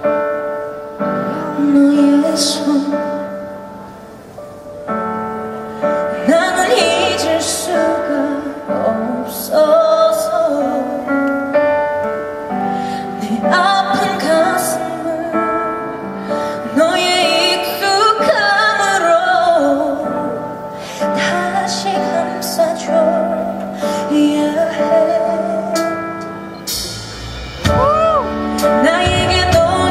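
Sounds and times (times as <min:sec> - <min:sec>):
woman singing: 0:01.0 - 0:03.8, 0:05.9 - 0:11.6, 0:13.0 - 0:26.3, 0:27.8 - 0:29.9
instrumental accompaniment: 0:24.9 - 0:29.9.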